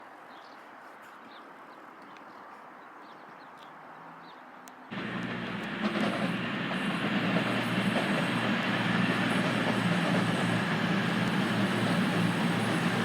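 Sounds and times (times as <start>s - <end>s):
diesel train engine: 4.9s - 13.0s
rail noise: 4.9s - 13.0s.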